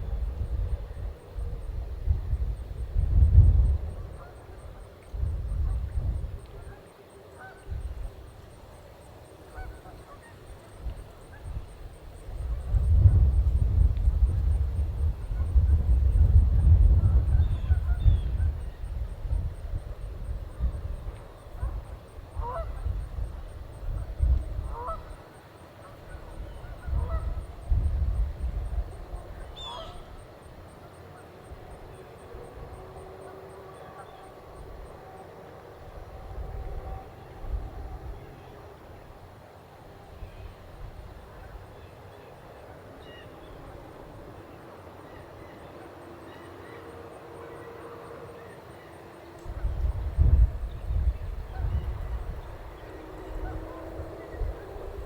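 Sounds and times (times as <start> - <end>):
distant steady drone: 0.0 - 55.0
geese honking: 21.5 - 23.0, 24.6 - 25.2, 29.6 - 30.2.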